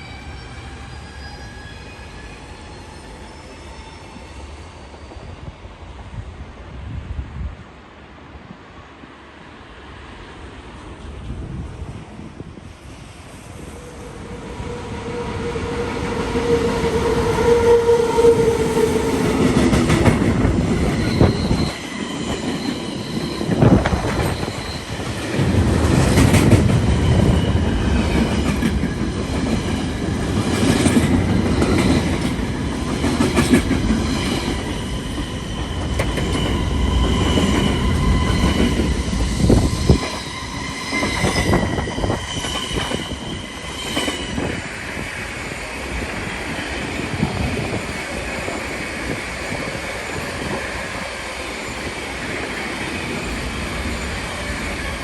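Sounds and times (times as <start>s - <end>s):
high-pitched wheel squeal: 0.0s - 5.0s, 13.7s - 19.5s, 20.7s - 25.4s, 34.1s - 44.7s
train wheels clattering: 15.5s - 44.8s.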